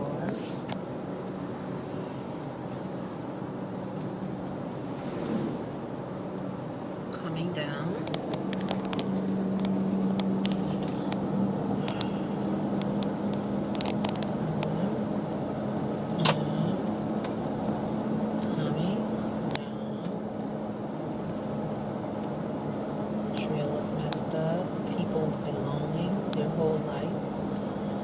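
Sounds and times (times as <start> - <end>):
car engine drone: 0.0 - 28.0
road noise: 0.0 - 28.0
sharp clicks and knocks: 12.8 - 14.7.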